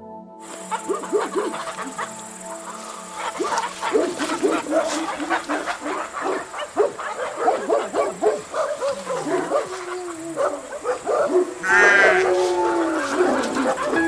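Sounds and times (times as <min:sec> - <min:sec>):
dog yapping: 0:03.2 - 0:14.0
cattle mooing: 0:04.8 - 0:14.0.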